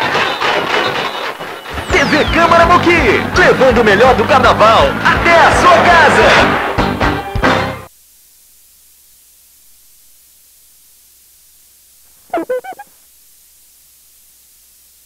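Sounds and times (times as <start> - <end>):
faint steady hiss: 6.8 - 15.0
quick pitched pulses: 12.2 - 13.0.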